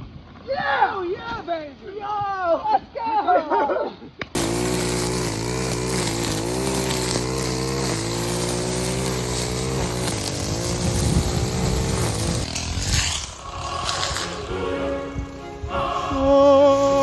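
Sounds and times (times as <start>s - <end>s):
small engine revving: 4.4s - 17.0s
steady rushing hiss: 4.4s - 17.0s.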